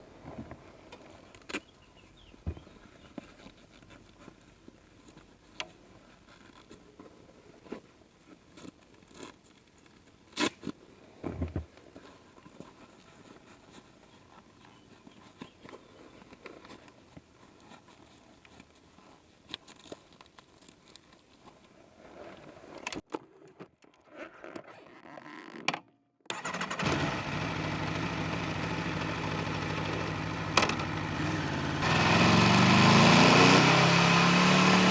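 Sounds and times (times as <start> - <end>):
motorcycle engine starting: 26.3 - 34.9
motorcycle engine idling: 26.4 - 34.9
handling clicks and knocks: 29.8 - 31.1.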